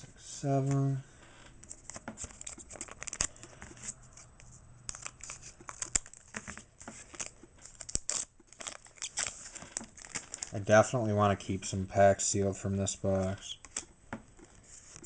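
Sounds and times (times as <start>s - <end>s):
foil wrapper tearing and crinkling: 2.2s - 3.5s, 4.9s - 10.6s.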